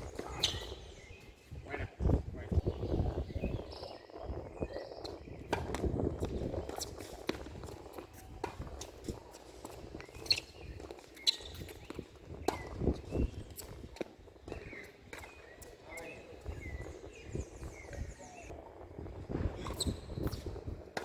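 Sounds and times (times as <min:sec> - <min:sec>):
footsteps on court: 0:05.0 - 0:18.3
tennis ball impacts: 0:11.8 - 0:13.2.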